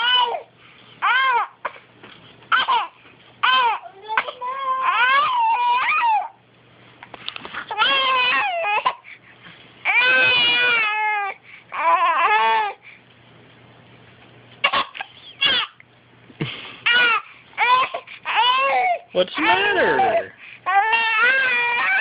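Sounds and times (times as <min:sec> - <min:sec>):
baby crying: 0:00.0 - 0:01.8, 0:02.5 - 0:06.4, 0:07.7 - 0:09.0, 0:09.8 - 0:12.8, 0:14.6 - 0:15.8, 0:16.8 - 0:22.0.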